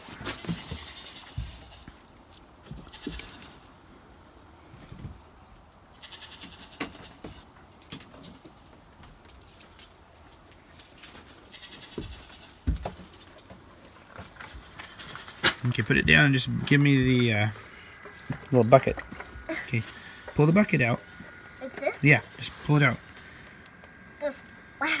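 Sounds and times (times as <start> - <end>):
goats calling: 6.0 - 7.5, 11.4 - 12.7, 14.5 - 25.0
clinks and knocks: 9.2 - 16.0.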